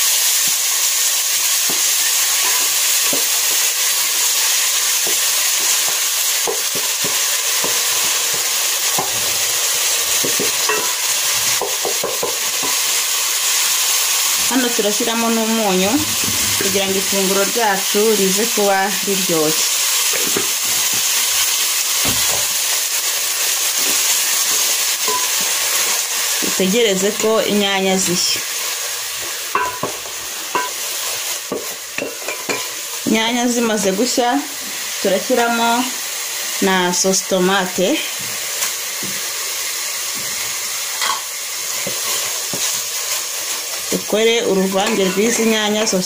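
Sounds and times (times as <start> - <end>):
vegetables sizzling in hot oil: 0.0 - 46.0.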